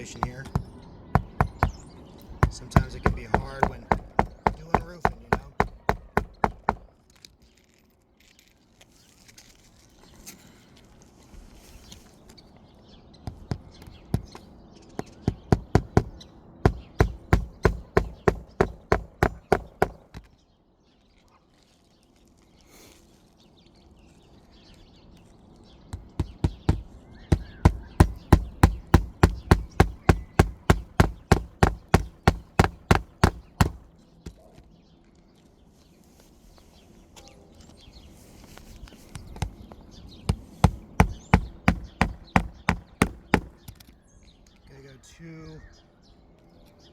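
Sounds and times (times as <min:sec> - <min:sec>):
hammer striking nails: 0:00.0 - 0:06.9, 0:15.0 - 0:20.3, 0:26.0 - 0:33.9, 0:40.3 - 0:43.8.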